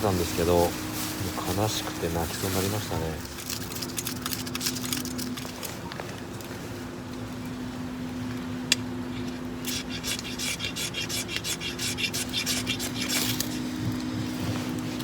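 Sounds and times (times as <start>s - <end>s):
tool scraping wood: 9.6s - 14.7s.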